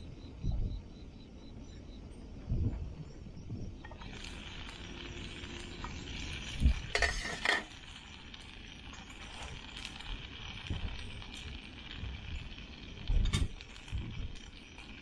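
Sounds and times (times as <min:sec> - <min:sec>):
food sizzling in frying pan: 0:03.8 - 0:15.0
pan lid clinking: 0:07.0 - 0:07.7.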